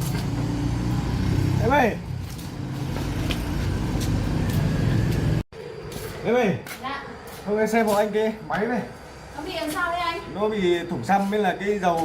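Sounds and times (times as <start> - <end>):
vehicle engine running: 0.0 - 5.4.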